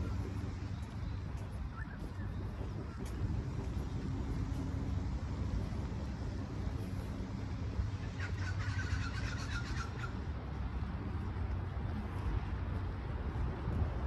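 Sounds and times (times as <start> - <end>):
low outdoor rumble: 0.0 - 14.0
bird squawking: 8.2 - 10.2.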